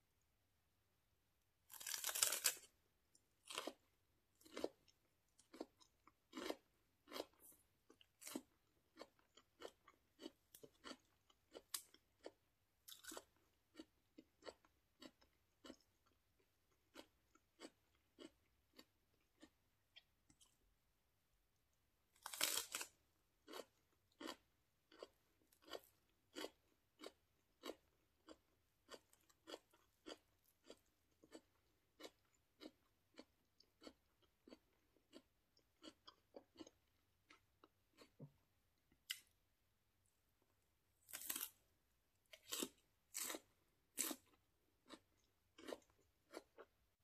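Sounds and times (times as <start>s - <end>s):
person biting crunchy vegetable: 1.7s - 2.7s, 3.4s - 3.8s, 22.2s - 31.4s, 41.0s - 41.6s, 42.3s - 45.0s
wet crunchy chewing: 1.7s - 2.7s, 4.4s - 16.2s, 23.5s - 38.3s, 41.1s - 41.6s, 42.3s - 46.7s.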